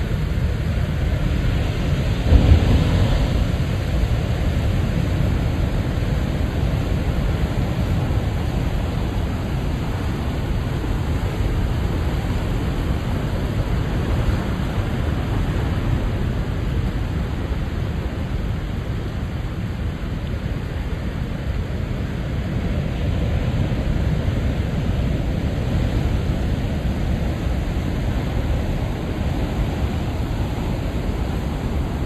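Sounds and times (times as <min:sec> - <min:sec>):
surf breaking on rocks: 0:01.2 - 0:08.5.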